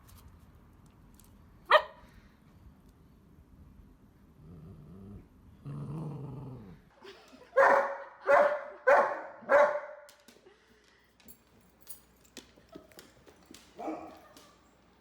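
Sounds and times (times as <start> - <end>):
dog barking: 1.7 - 2.0, 7.6 - 10.1, 13.8 - 14.6
dog growling: 4.4 - 6.9.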